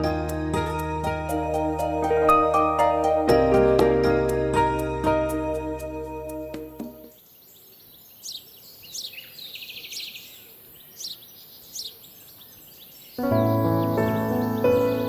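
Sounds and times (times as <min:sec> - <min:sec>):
background music: 0:00.0 - 0:07.1, 0:13.2 - 0:15.0
songbird singing: 0:05.5 - 0:15.0.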